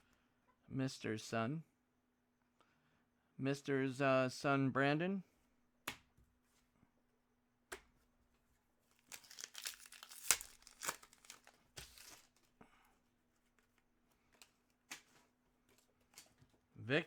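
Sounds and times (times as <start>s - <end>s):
wrapper tearing and crinkling: 8.9s - 12.6s.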